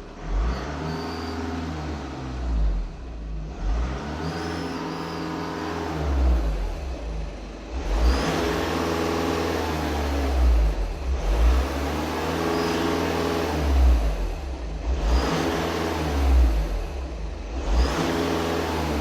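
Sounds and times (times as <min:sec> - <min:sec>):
diesel engine revving: 0:00.0 - 0:19.0
short high whistle: 0:04.3 - 0:05.8.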